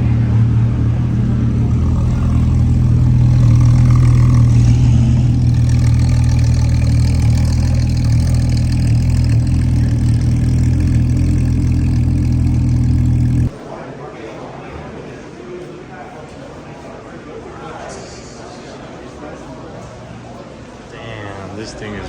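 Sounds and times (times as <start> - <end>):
car engine running at low revs: 0.0 - 13.6.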